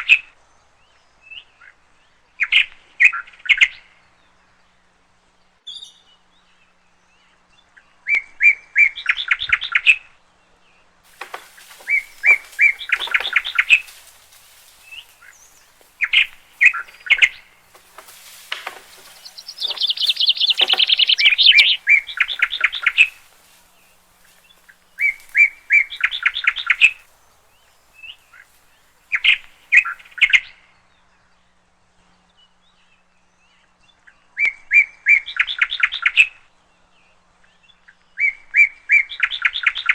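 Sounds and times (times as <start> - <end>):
songbird singing with buzzy trill: 11.1 - 30.3.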